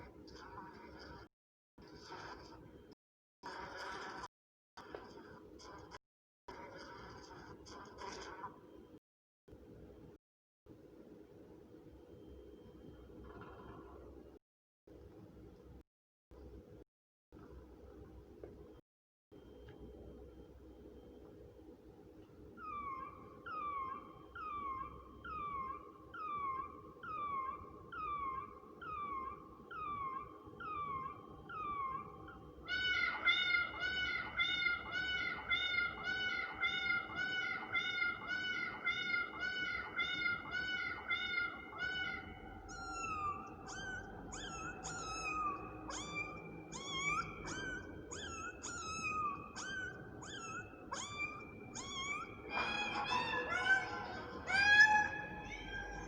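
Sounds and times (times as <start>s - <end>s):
kitten meowing: 22.6s - 56.0s.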